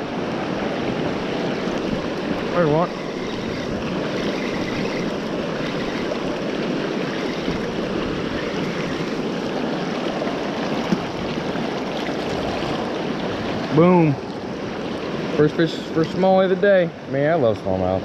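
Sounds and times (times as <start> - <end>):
river water rushing: 0.0 - 17.2.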